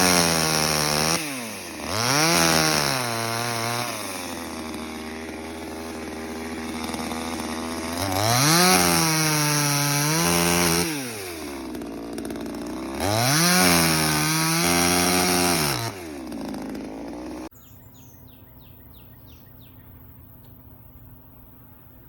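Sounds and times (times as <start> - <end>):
chainsaw revving: 0.0 - 17.5
bird chirps: 17.5 - 22.0.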